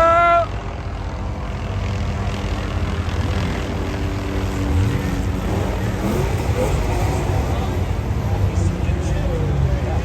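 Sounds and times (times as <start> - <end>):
car engines droning: 0.0 - 10.0
car engine revving: 2.6 - 10.0.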